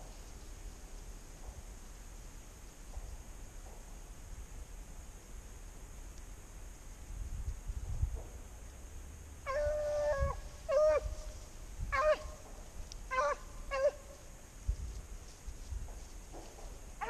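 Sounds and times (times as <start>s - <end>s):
beagle baying: 9.5s - 11.3s, 11.9s - 12.5s, 13.1s - 14.2s.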